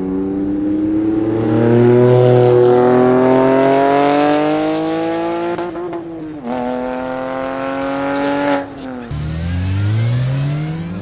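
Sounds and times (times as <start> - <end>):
car engine accelerating: 9.1 - 11.0.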